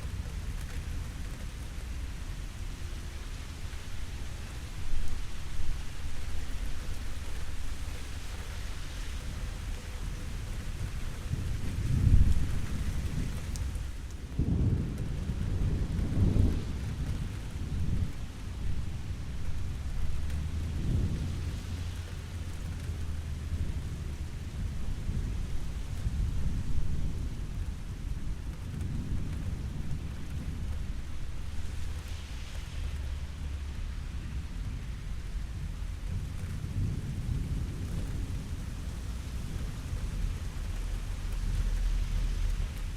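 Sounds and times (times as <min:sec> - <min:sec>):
steady rain: 0:00.0 - 0:42.9
thunder rumbling: 0:09.6 - 0:42.9.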